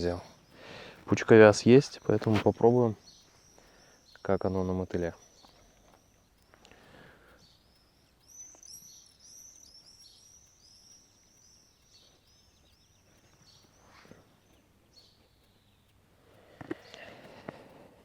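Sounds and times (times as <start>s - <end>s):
songbird chirping: 0.0s - 18.0s.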